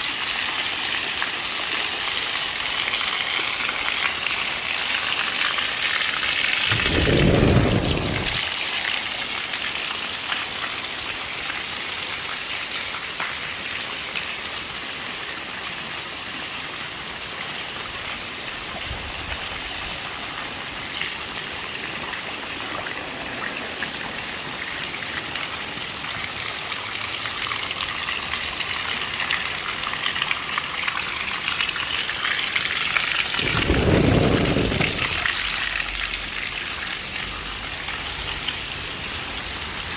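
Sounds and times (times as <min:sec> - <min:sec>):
heavy rain falling: 0:00.7 - 0:39.9
low rumbles: 0:06.7 - 0:08.5, 0:33.4 - 0:36.3.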